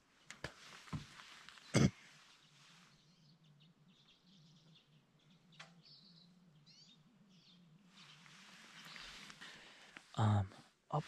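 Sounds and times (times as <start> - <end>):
faint small bird chirps: 1.4 - 9.4.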